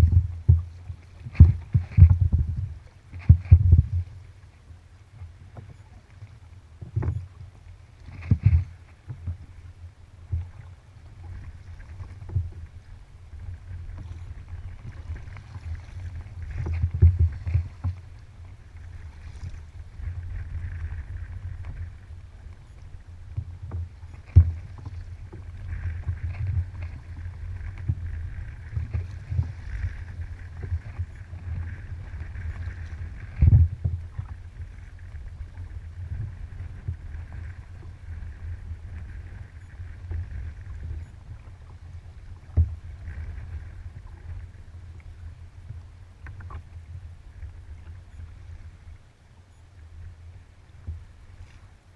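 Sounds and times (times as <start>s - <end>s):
water splashing from paddle strokes: 0.0s - 48.9s
steady low rumble: 0.0s - 51.5s.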